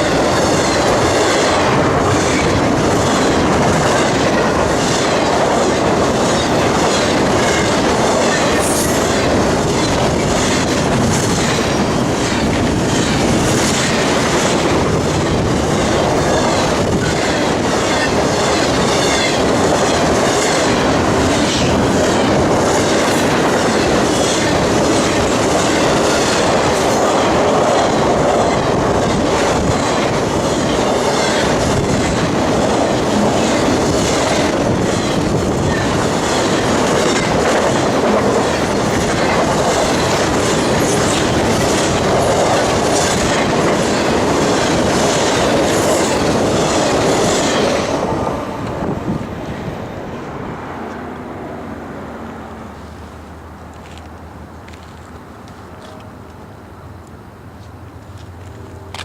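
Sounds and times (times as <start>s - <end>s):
wheels clacking over rail joints: 0.0s - 51.2s, 52.8s - 59.0s
railroad cars rolling past: 0.0s - 59.0s.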